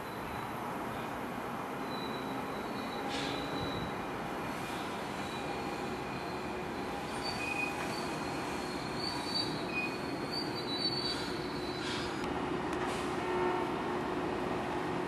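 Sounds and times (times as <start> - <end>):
train wheels rumbling on rail: 0.0 - 15.0
faint high-pitched wheel squeals: 1.8 - 4.0, 4.7 - 12.2.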